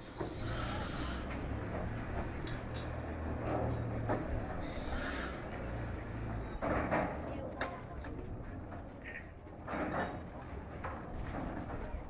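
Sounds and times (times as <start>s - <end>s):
train low hum: 0.0s - 6.4s.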